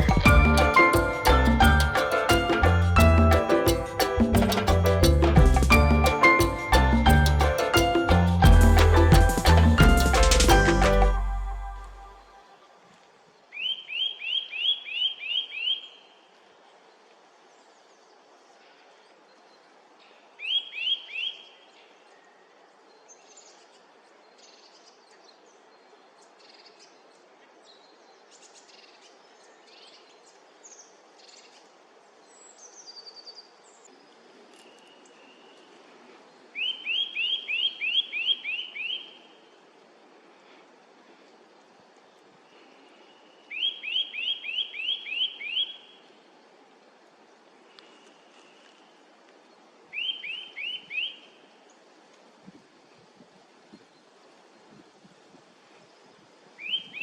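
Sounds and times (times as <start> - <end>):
woodpecker sharp calls: 36.6 - 39.1, 43.5 - 45.8, 49.9 - 51.2.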